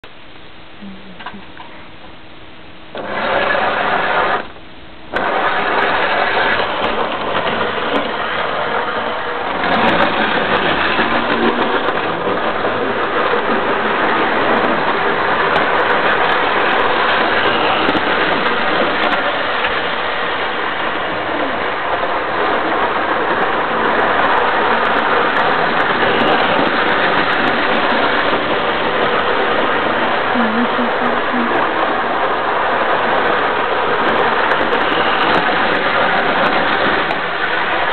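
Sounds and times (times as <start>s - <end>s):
model train motor whirring: 2.9s - 4.5s, 5.1s - 21.5s.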